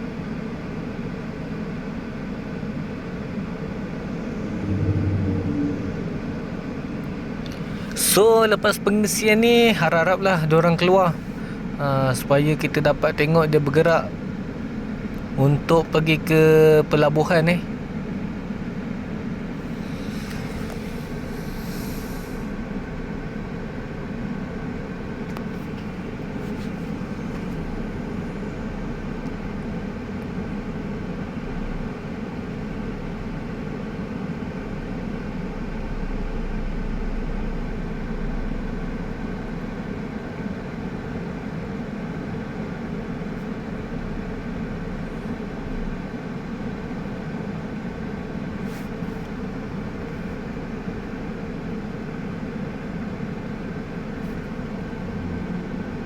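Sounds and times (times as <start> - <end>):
diesel truck engine rumbling: 3.0 - 15.1.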